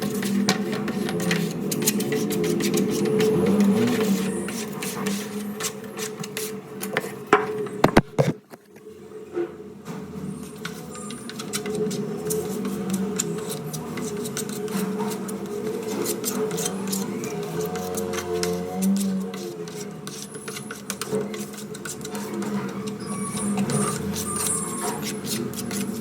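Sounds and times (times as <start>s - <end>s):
mechanical hum: 0.0s - 26.0s.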